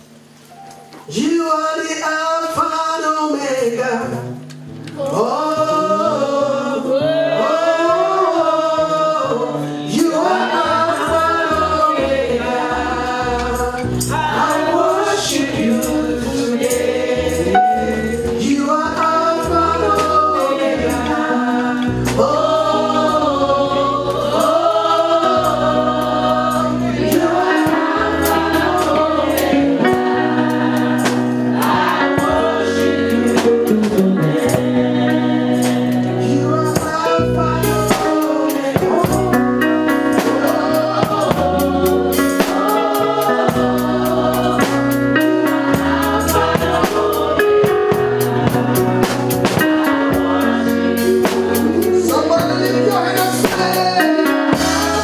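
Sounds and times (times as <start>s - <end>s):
voices singing gospel: 1.0s - 55.0s
band playing: 3.6s - 55.0s
held bass notes: 4.0s - 55.0s
percussion steady beat: 36.7s - 55.0s.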